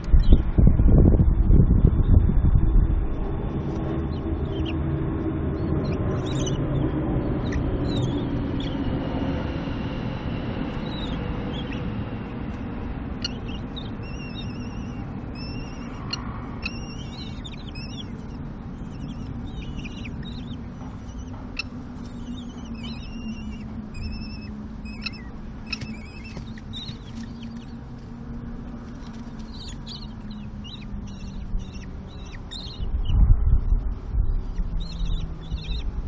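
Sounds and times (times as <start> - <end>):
low rumble: 0.0 - 36.0
short high bird calls: 13.2 - 27.8.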